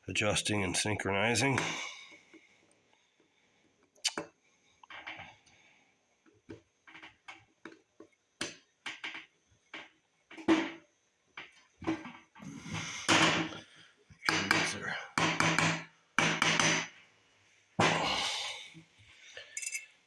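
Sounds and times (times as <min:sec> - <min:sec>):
small metal parts and tools clicking: 0:19.4 - 0:20.0.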